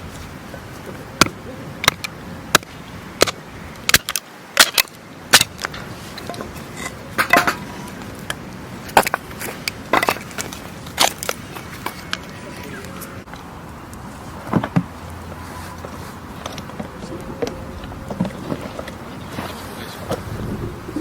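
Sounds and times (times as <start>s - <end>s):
steady low background noise: 0.0s - 21.0s
sharp knocks and cracks: 1.2s - 6.5s.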